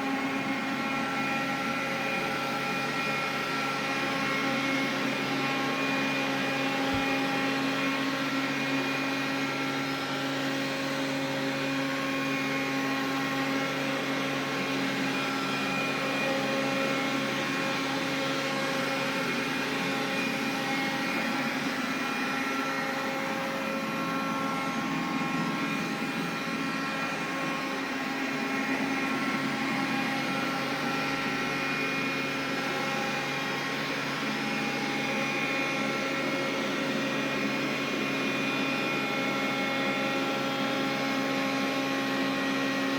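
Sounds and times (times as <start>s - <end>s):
vacuum cleaner whirring: 0.0s - 42.9s.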